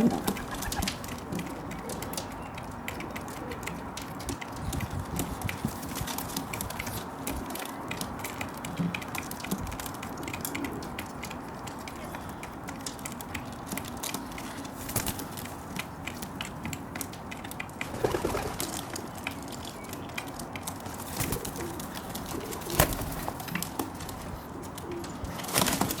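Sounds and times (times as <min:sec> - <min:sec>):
pigeon cooing: 0:00.0 - 0:03.8, 0:21.2 - 0:23.4
pigeon pecking seeds: 0:00.0 - 0:26.0.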